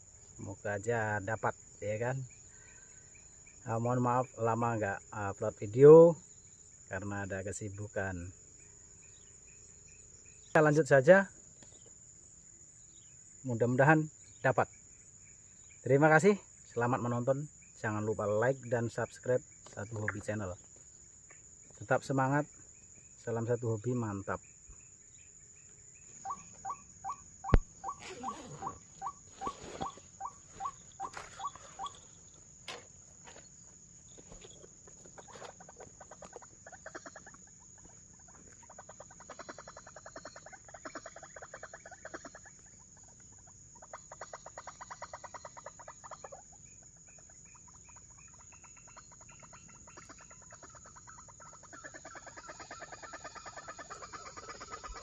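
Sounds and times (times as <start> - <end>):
waterhen clucking calls: 26.1 - 32.2, 34.5 - 55.0.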